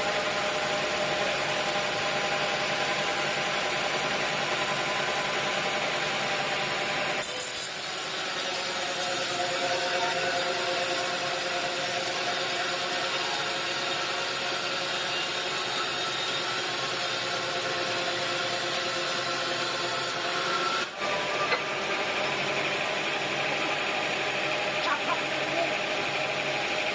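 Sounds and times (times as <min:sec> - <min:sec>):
saw cutting through wood: 0:07.2 - 0:26.9.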